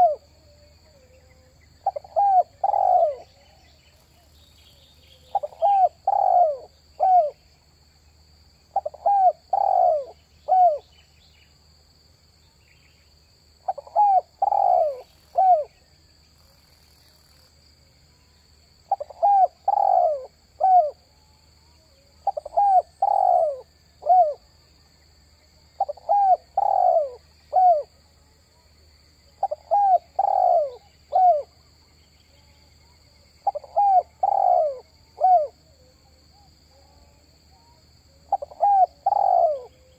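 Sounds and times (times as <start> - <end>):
dove cooing: 0.0 - 3.6, 5.2 - 7.4, 8.7 - 10.9, 13.6 - 15.8, 18.9 - 21.0, 22.2 - 24.4, 25.8 - 27.9, 29.4 - 31.5, 33.4 - 36.5, 38.2 - 39.9
faint high-pitched whine: 0.0 - 39.9.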